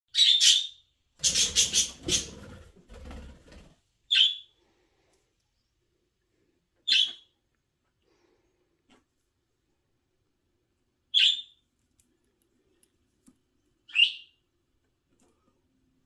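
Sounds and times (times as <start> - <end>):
birds chirping: 0.2 - 2.6
wings fluttering: 1.2 - 3.8.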